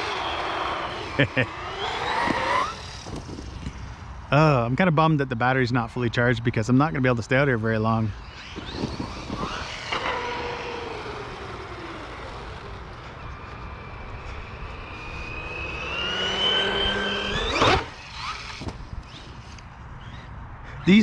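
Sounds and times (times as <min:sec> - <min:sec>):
rc car electric motor whining: 0:00.0 - 0:04.0, 0:08.1 - 0:20.4.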